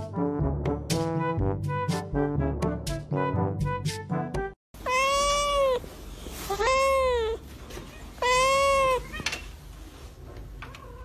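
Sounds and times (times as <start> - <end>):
cat meowing: 4.8 - 5.8, 6.4 - 9.5.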